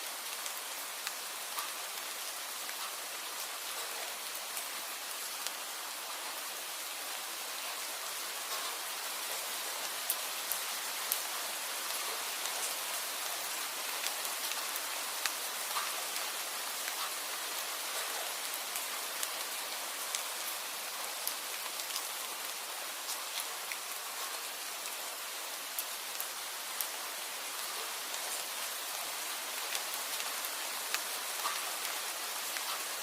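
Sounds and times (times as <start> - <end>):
steady rain hiss: 0.0 - 33.0
raindrops ticking: 13.8 - 25.0, 25.8 - 27.0, 27.6 - 33.0.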